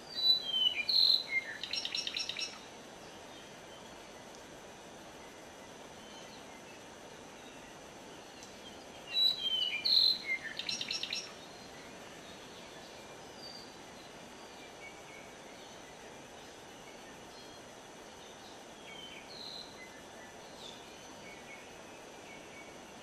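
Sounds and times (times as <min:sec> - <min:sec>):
songbird singing whistled notes: 0:00.0 - 0:04.4, 0:05.1 - 0:23.0
forest background noise: 0:00.0 - 0:23.0
faint bird calls: 0:05.2 - 0:13.8.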